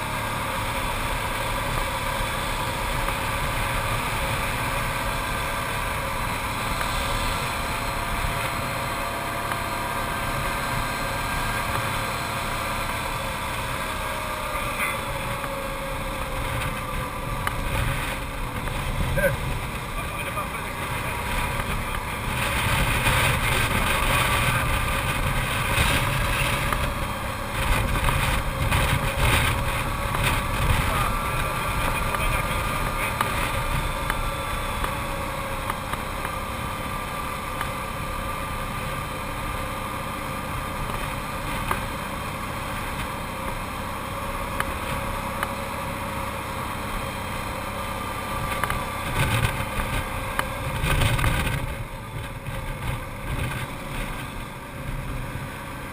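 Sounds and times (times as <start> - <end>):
atv engine running: 0.0 - 55.9
wind buffeting the microphone: 21.2 - 34.4.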